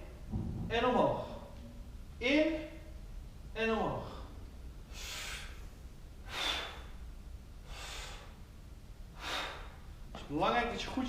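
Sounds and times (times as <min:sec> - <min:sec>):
person breathing hard: 0:04.0 - 0:08.4, 0:09.1 - 0:09.9.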